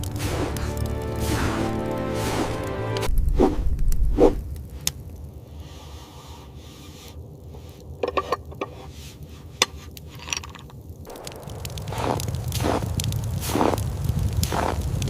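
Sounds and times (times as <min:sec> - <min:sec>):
low rumble: 0:00.0 - 0:08.6, 0:11.0 - 0:15.0
handling swishes: 0:00.2 - 0:03.6.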